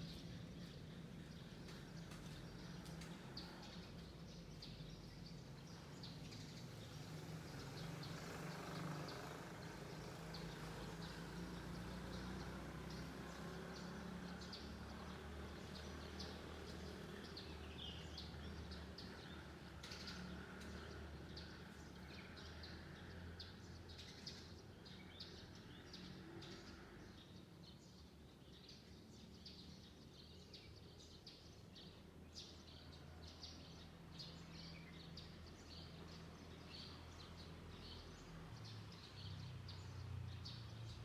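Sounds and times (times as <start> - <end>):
songbirds chirping: 0.0 - 41.0.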